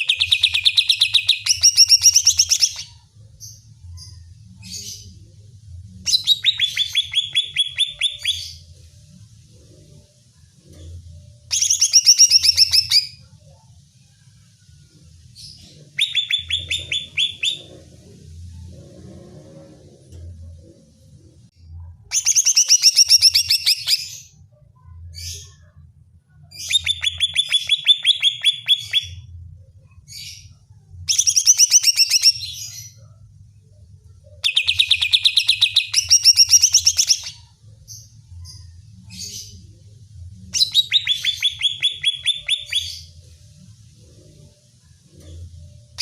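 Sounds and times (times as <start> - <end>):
bird chattering song: 0.0 - 3.1, 6.1 - 8.7, 11.5 - 13.2, 15.7 - 18.0, 22.1 - 24.4, 26.6 - 29.2, 30.3 - 32.9, 34.4 - 37.6, 40.5 - 43.2.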